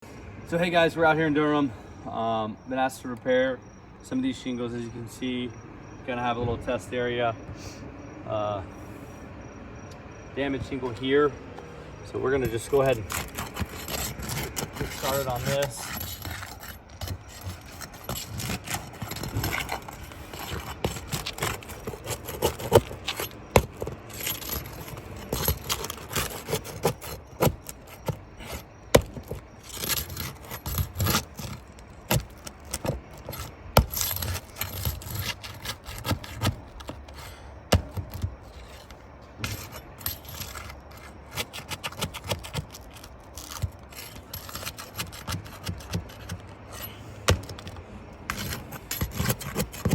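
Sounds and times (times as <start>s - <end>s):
tools scraping roof shingles: 12.2s - 49.9s.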